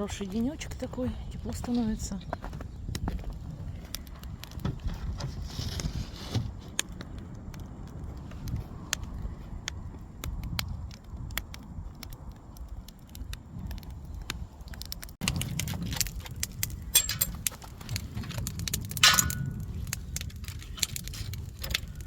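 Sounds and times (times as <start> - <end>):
small wooden clicks and knocks: 2.2 - 22.0.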